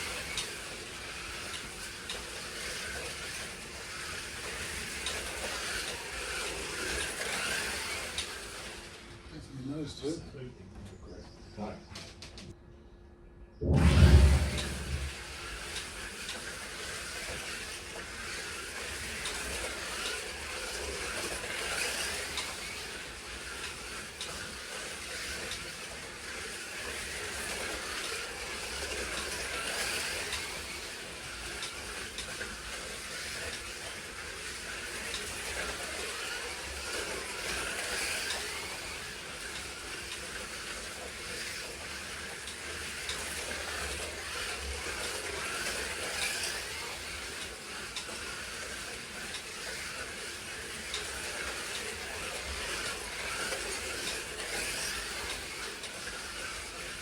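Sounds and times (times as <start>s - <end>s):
slot cars hissing on track: 16.9s - 57.0s.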